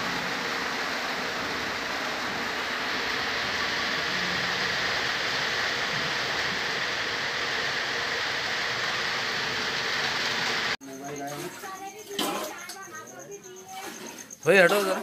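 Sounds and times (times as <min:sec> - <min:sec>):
heavy rain falling: 0:00.0 - 0:10.8.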